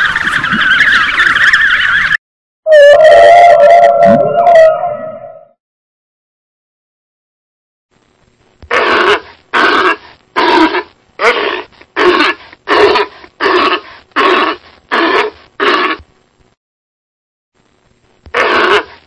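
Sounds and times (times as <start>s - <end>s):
sea animal barking calls: 8.7s - 16.0s, 18.3s - 19.0s.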